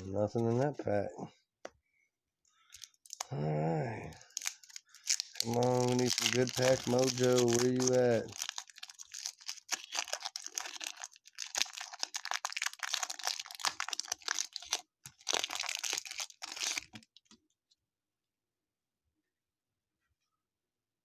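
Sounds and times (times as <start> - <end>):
wrapper tearing and crinkling: 2.7 - 3.3, 4.1 - 17.1.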